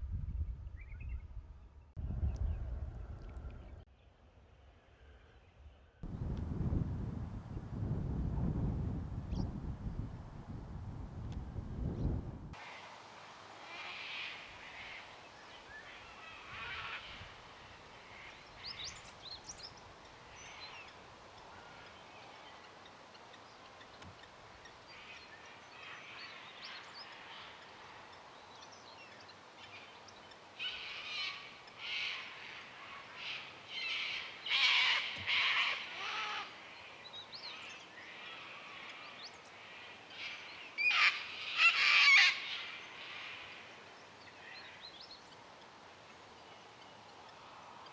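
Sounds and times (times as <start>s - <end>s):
birds chirping: 6.0s - 12.5s.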